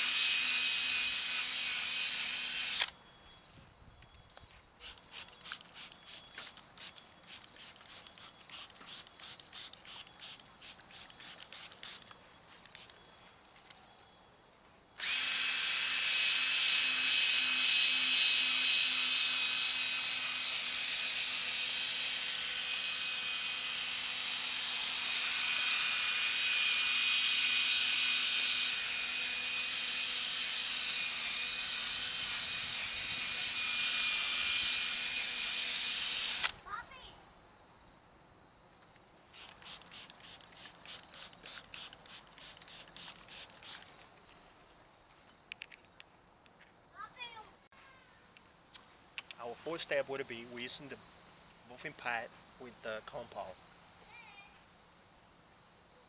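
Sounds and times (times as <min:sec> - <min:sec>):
electric drill whining: 0:00.0 - 0:03.0, 0:15.0 - 0:36.6
rapid short strokes: 0:04.8 - 0:13.0, 0:39.3 - 0:44.0.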